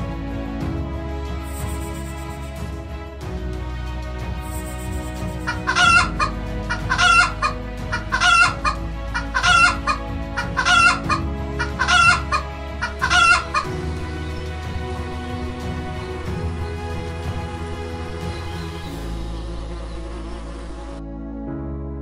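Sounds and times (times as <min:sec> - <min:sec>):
hen clucking: 0:05.2 - 0:13.7.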